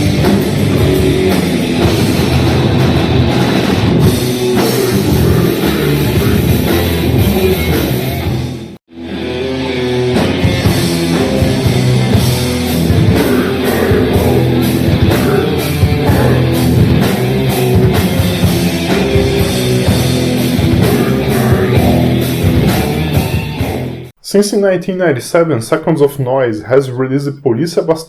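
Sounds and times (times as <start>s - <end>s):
drum hits: 0.0s - 7.7s, 10.4s - 23.9s
distorted guitars and bass: 0.0s - 24.1s
metal vocals: 0.0s - 28.0s.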